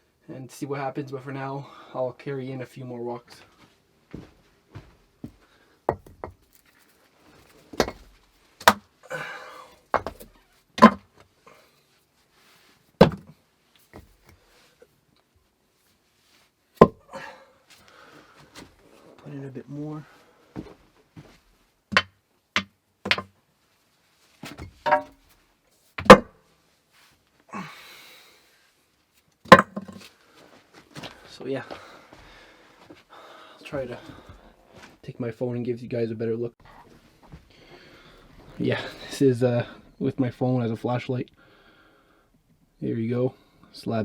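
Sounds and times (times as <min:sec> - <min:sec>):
rocks knocking and clunking: 0:05.2 - 0:06.6, 0:07.4 - 0:08.8, 0:09.9 - 0:11.1, 0:13.0 - 0:13.4, 0:29.5 - 0:30.1.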